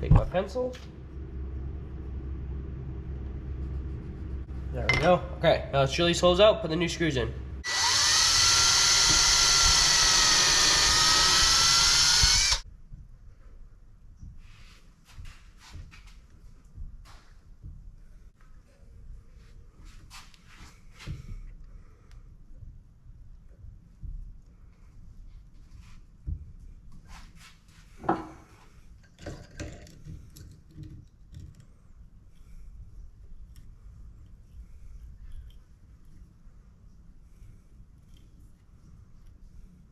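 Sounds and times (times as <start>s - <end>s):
power drill drilling into wood: 7.6s - 12.6s
wood and tools knocking: 28.0s - 28.4s.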